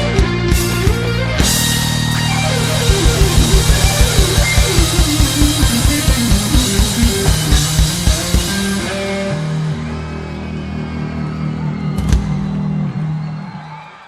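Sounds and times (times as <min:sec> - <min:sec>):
rock band playing: 0:00.0 - 0:13.6
descending guitar run: 0:00.0 - 0:13.8
kick drum beats: 0:02.8 - 0:08.6.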